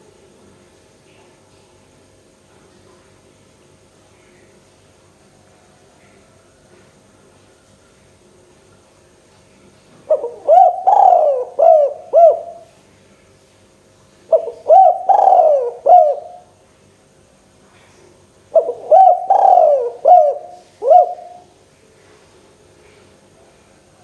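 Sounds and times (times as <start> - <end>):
dove cooing: 10.1 - 12.7, 14.3 - 16.5, 18.5 - 21.5.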